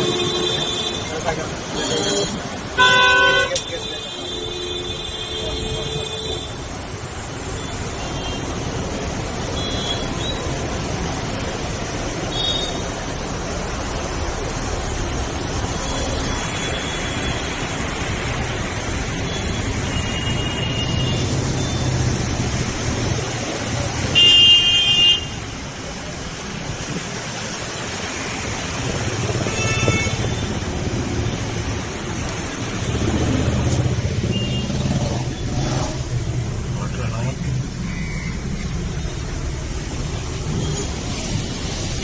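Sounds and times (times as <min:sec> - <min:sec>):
traffic: 0:00.0 - 0:42.0
wind: 0:00.0 - 0:42.0
vehicle horn blast: 0:01.8 - 0:03.6.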